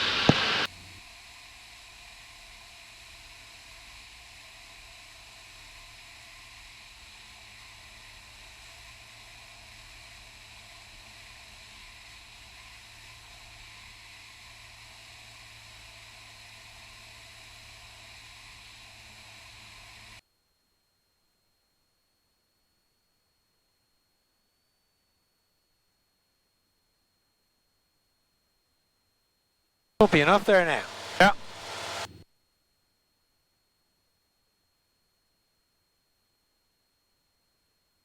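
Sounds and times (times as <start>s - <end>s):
burst of radio noise: 0.0s - 0.7s, 30.0s - 32.1s
intercom hiss and hum: 0.0s - 0.7s, 30.0s - 32.2s
faint aircraft engine: 0.0s - 20.2s, 30.0s - 32.2s.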